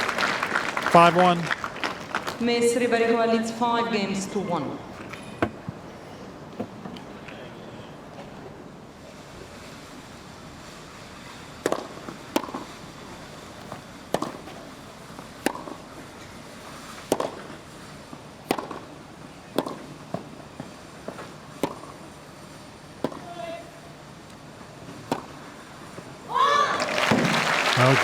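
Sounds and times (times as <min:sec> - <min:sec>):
crowd background: 0:00.0 - 0:06.1, 0:26.6 - 0:28.0
tennis ball hit by racket: 0:11.6 - 0:12.7, 0:13.6 - 0:14.7, 0:15.4 - 0:15.8, 0:17.0 - 0:17.6, 0:18.4 - 0:20.4, 0:21.0 - 0:22.0, 0:23.0 - 0:23.3, 0:25.0 - 0:25.4.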